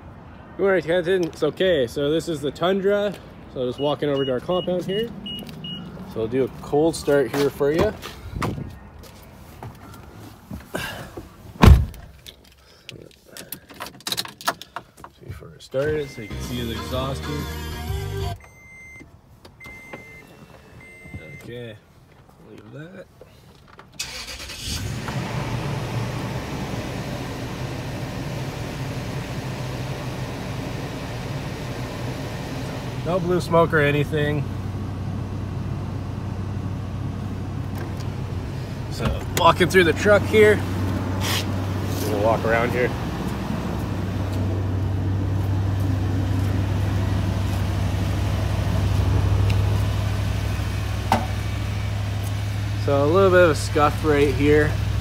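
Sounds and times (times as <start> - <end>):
engine starter cranking: 24.0 - 25.2
car engine idling: 24.0 - 55.0.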